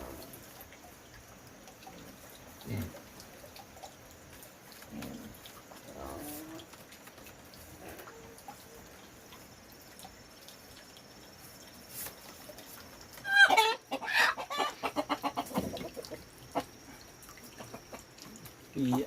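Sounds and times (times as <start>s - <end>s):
chicken clucking: 13.2s - 16.9s, 17.5s - 18.1s.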